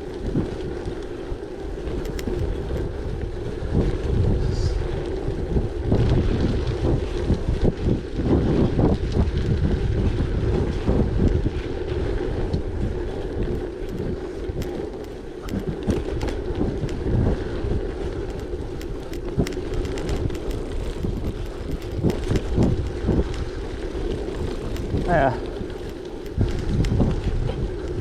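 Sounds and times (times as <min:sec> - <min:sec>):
bike tyre rumble: 0:00.0 - 0:28.0
wind buffeting microphone: 0:00.0 - 0:28.0
small clicks and knocks: 0:01.9 - 0:02.9, 0:13.4 - 0:17.0, 0:18.2 - 0:22.7.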